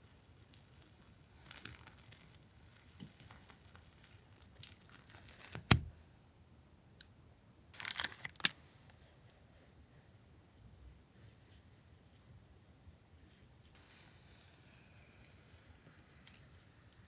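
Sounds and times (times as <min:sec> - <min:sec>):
packaging crinkling and rustling: 0:00.0 - 0:05.9, 0:07.8 - 0:08.6.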